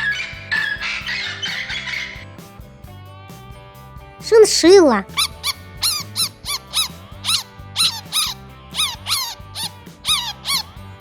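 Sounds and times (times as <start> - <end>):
chinchilla squeaking: 0.0 - 2.2, 5.1 - 10.7
background music: 0.0 - 11.0.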